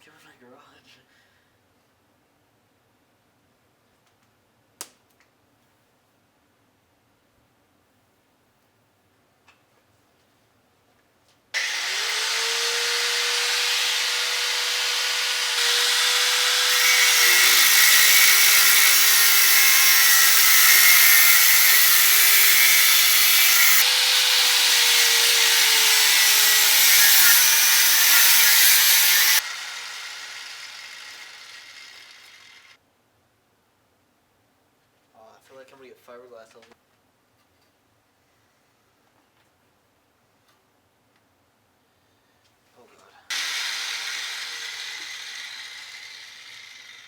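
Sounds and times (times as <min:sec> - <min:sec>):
angle grinder cutting metal: 0:11.6 - 0:32.8, 0:43.3 - 0:47.0.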